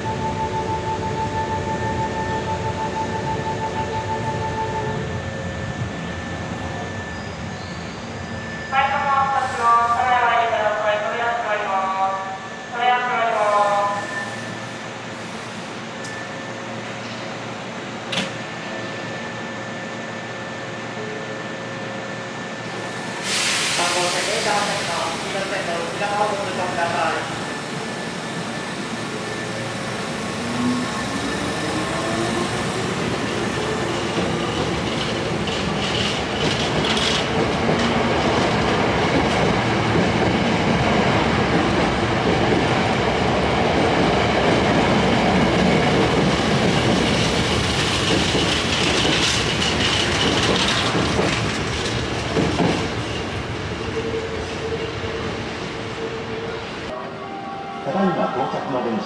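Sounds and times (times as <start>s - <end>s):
train cars clattering over rail joints: 46.1s - 53.4s.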